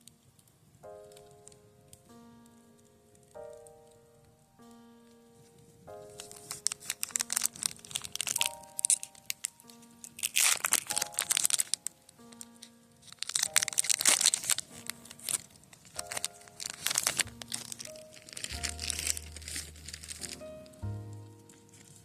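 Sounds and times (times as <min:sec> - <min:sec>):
soft background music: 0:00.0 - 0:22.0
foil wrapper crinkling: 0:05.9 - 0:22.0.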